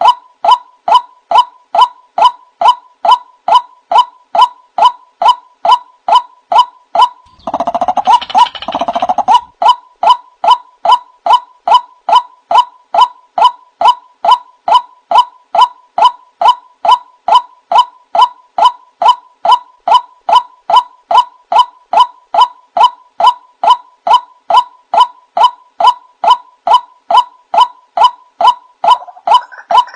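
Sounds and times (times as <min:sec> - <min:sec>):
waterhen calls: 0:07.3 - 0:09.5, 0:28.9 - 0:29.9.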